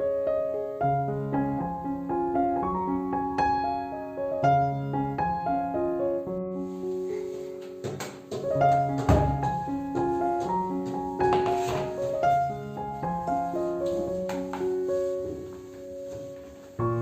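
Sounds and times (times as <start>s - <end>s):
gentle solo piano music: 0.0s - 17.0s
knocks: 7.6s - 12.0s.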